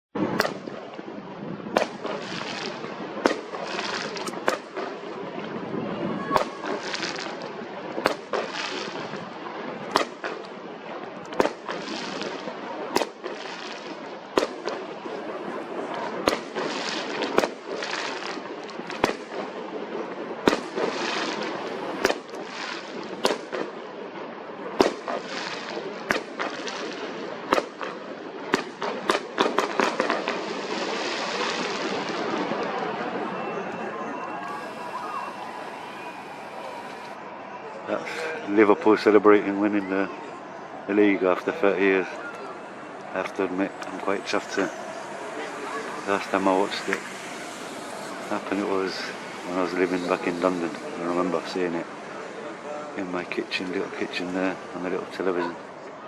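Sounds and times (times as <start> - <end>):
fireworks bangs: 0.2 - 56.0
fireworks crackling: 0.2 - 56.0.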